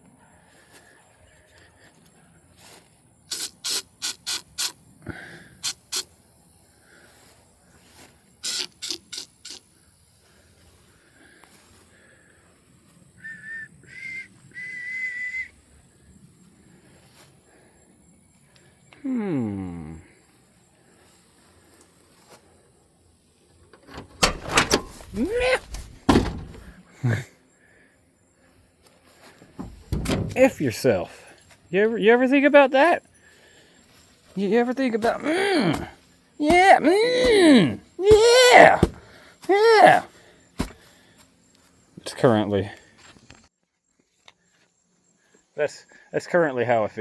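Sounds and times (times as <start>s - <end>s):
aerosol spray hissing: 3.3s - 4.8s, 5.6s - 6.2s, 8.4s - 9.7s
door creaking: 23.8s - 26.8s, 29.6s - 30.6s
truck door metal rattling: 23.8s - 26.8s, 29.6s - 30.6s, 38.6s - 39.0s.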